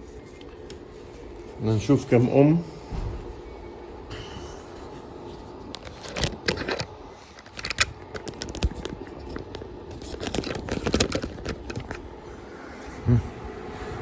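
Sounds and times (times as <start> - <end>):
plastic and metal clicks and scrapes: 5.7 - 12.1.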